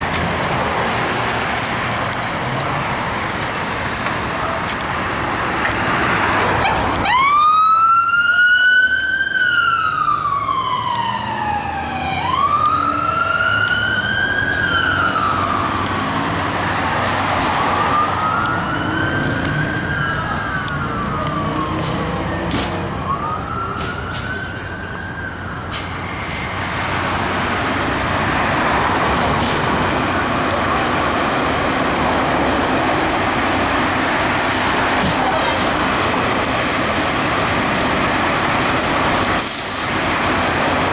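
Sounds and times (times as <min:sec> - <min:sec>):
heavy vehicle and road noise: 0:00.0 - 0:40.9
siren wailing: 0:05.2 - 0:39.4
second siren wailing: 0:06.1 - 0:27.0.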